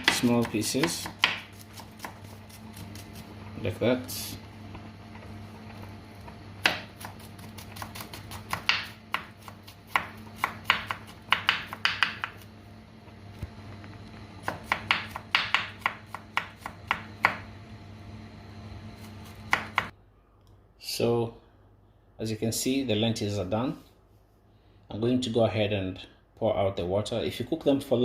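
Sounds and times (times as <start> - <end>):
knife chopping on cutting board: 0.0 - 3.3, 6.6 - 12.5, 14.4 - 17.4, 19.0 - 19.9.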